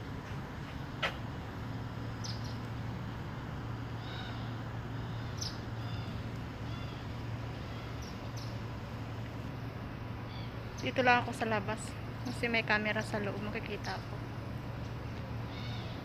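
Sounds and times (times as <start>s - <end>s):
steady low hum: 0.0s - 16.0s
small birds chirping: 2.0s - 2.9s, 3.8s - 9.3s, 10.2s - 14.2s, 15.2s - 16.0s.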